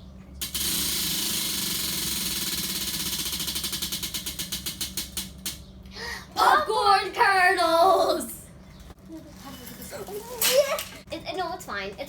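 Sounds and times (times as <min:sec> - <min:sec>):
prize wheel clicking: 0:00.4 - 0:05.6.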